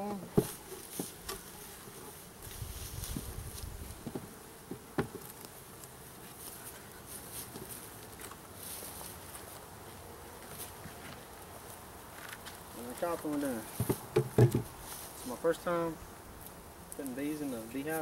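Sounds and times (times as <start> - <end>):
honey bees buzzing: 0.0 - 18.0
wooden hive parts knocking: 13.3 - 14.7.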